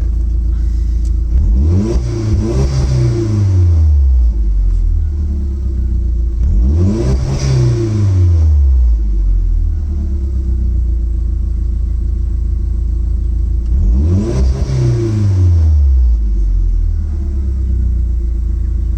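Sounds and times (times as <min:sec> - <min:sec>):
car engine idling and revving: 0:00.0 - 0:18.9.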